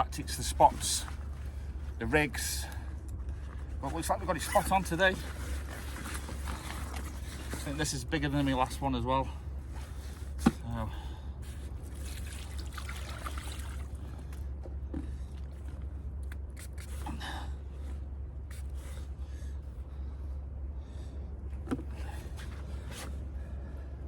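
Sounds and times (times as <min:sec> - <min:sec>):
steady low hum: 0:00.0 - 0:24.0
handling rustles: 0:03.0 - 0:08.8
water splashes and drips: 0:11.8 - 0:14.5.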